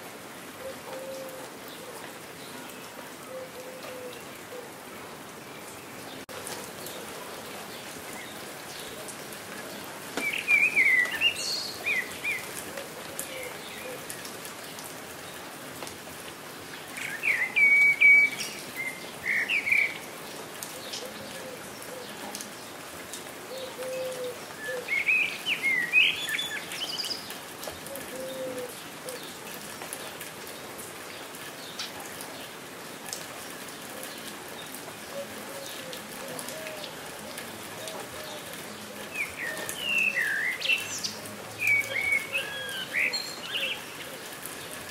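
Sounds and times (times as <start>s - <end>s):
steady rain falling: 0.0s - 44.9s
songbird rapid chirps: 39.0s - 44.0s.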